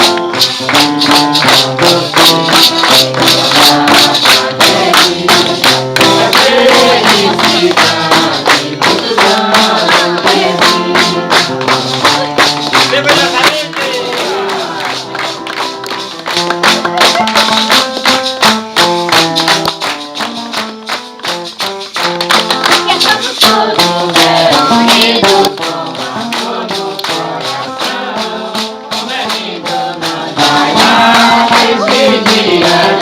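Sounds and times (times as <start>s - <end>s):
maracas shaken: 0.0s - 33.0s
group of voices singing a hymn: 1.9s - 12.3s, 13.1s - 15.1s, 23.0s - 33.0s.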